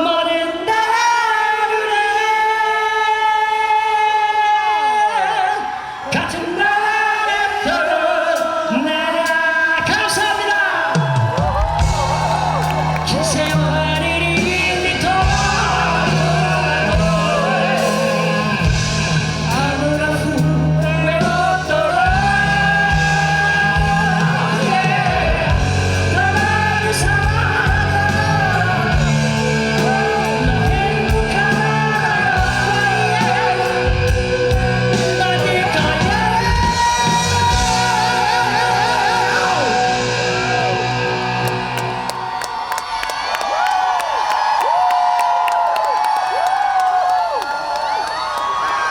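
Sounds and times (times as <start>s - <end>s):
live rock band: 9.9s - 43.3s
person singing long held notes: 11.8s - 42.1s.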